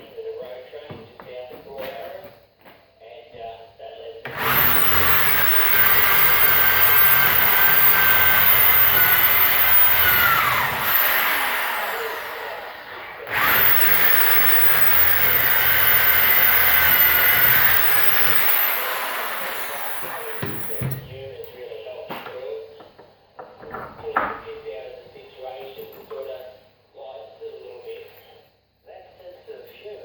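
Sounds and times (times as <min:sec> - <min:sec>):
electric power tool whining: 0:04.3 - 0:21.0.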